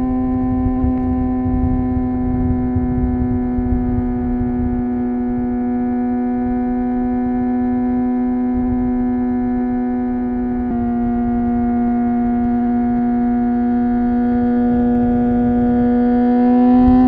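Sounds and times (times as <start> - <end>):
motorcycle engine at high revs: 0.0 - 17.0.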